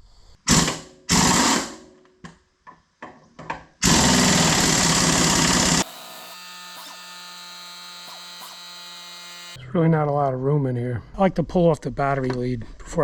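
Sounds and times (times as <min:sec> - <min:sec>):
handheld power tool running: 0:03.8 - 0:09.6.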